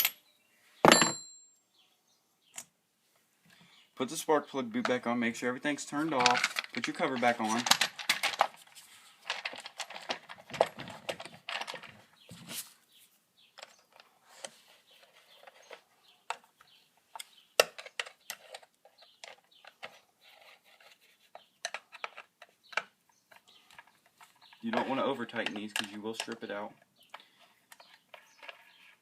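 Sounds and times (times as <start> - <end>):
plastic cover clicks and rattles: 6.1 - 8.6, 9.3 - 12.0.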